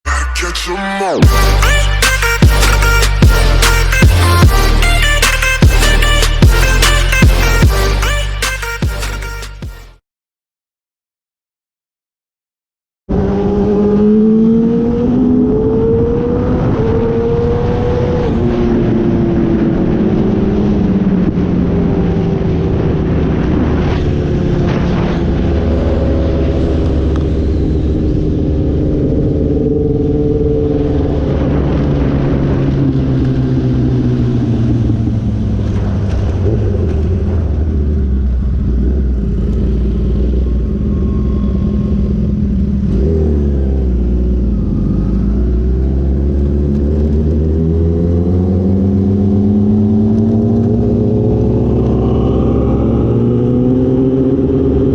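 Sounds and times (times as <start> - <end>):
motorcycle engine accelerating: 13.1 - 54.9.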